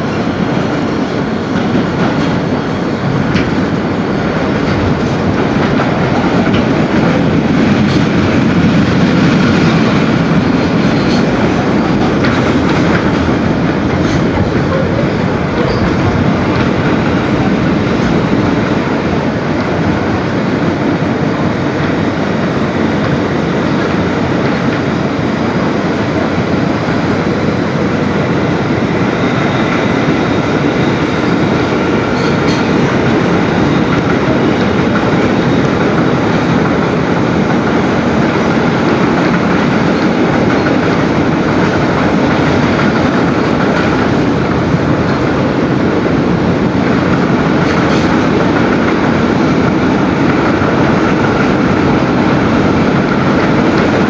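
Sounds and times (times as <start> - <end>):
wheels rumbling on rail: 0.0 - 54.0.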